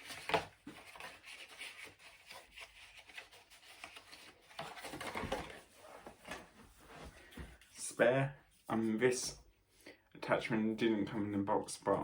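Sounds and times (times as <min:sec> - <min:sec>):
scratchy rubbing and rustling: 0:00.0 - 0:07.8.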